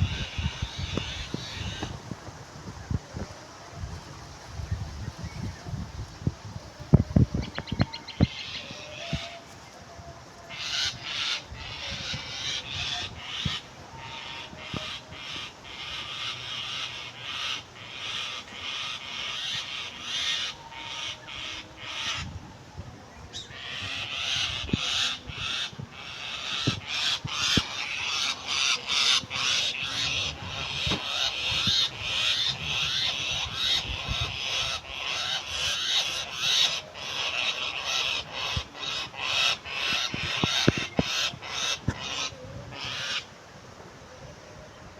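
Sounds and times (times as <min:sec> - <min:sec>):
bird calling in harsh cries: 0:10.5 - 0:22.3, 0:23.3 - 0:43.3.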